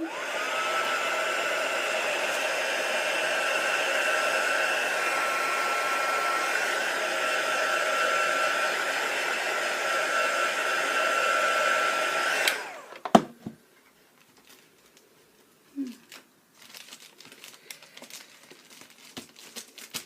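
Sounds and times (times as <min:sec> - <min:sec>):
hot-air dryer blowing with whine: 0:00.0 - 0:13.0.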